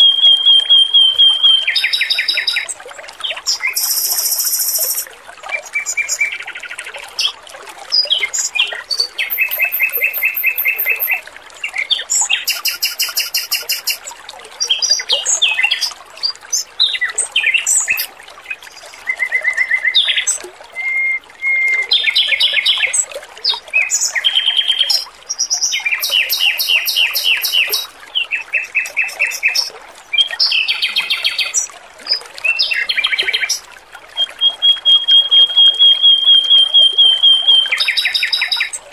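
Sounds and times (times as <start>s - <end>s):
bird singing fast repeated notes: 0.0s - 2.7s, 3.5s - 5.1s, 9.2s - 11.2s, 12.1s - 14.1s, 17.5s - 18.1s, 23.8s - 29.7s, 34.2s - 38.8s
water trickling: 0.0s - 38.9s.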